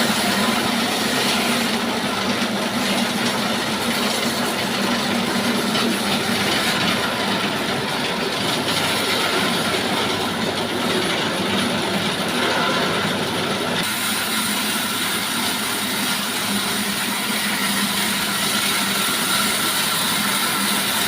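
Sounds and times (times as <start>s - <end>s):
sawmill sawing timber: 0.0s - 21.0s.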